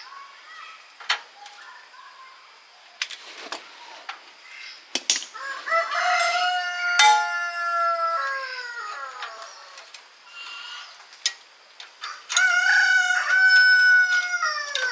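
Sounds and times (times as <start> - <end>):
rooster crowing: 5.3 - 10.0, 12.0 - 14.9.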